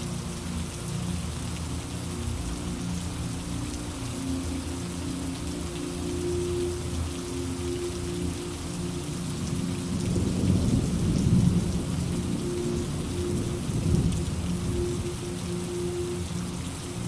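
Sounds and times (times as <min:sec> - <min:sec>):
rain falling: 0:00.0 - 0:17.0
thunder rumbling: 0:09.8 - 0:15.2.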